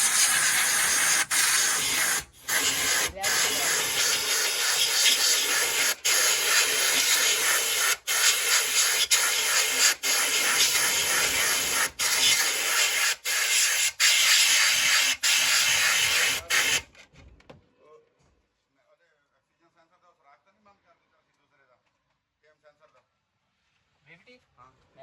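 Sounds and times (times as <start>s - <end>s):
pressurised jet hissing: 0.0s - 16.8s.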